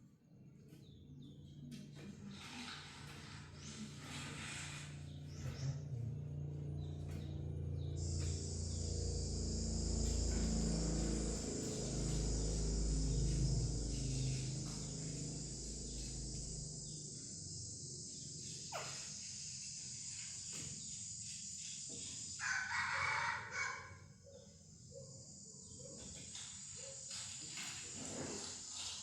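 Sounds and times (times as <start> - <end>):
high insect drone: 0.4 - 29.0
low hum: 1.1 - 19.9
rooster crowing: 22.4 - 24.0.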